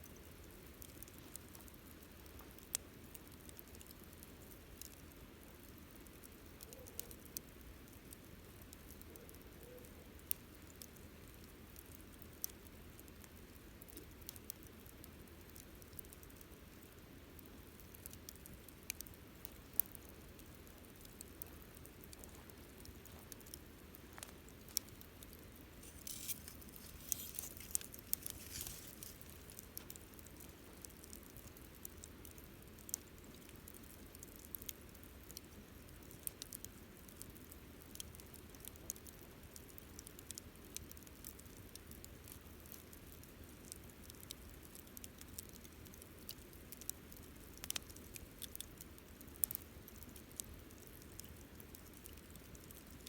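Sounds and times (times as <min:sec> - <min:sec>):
campfire crackling: 0:00.0 - 0:53.0
fire hissing flares: 0:22.2 - 0:31.4.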